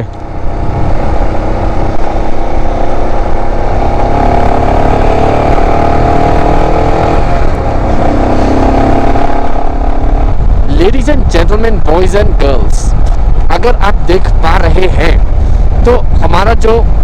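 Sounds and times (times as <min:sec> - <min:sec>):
motorcycle engine running: 0:00.0 - 0:10.7.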